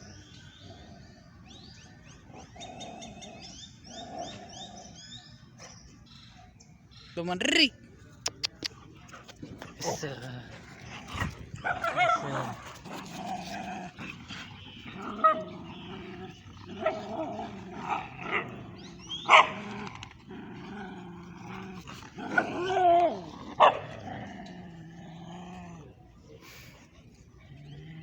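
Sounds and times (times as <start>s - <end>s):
dogs growling: 0.0s - 5.3s, 8.6s - 28.0s
dogs barking and yelping: 10.9s - 24.6s.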